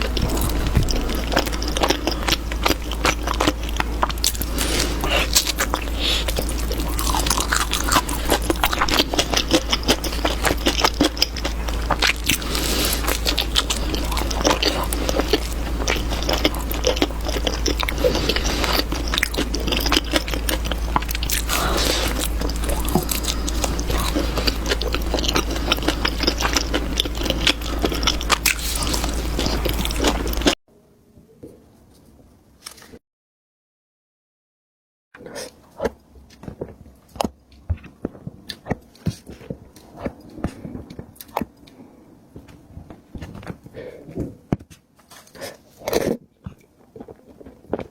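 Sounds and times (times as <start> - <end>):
person chewing with mouth clicks: 0.0 - 30.6
steady low hum: 0.0 - 30.6.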